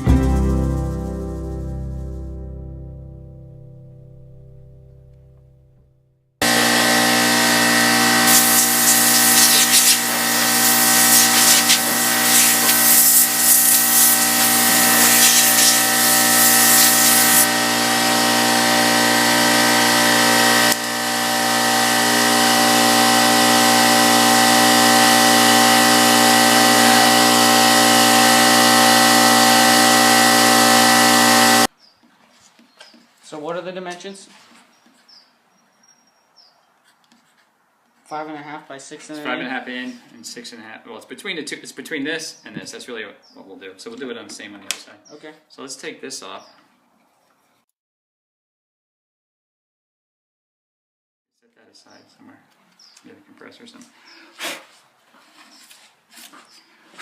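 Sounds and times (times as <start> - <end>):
power tool motor hum: 6.4 - 31.7
rasping rub: 8.2 - 17.5.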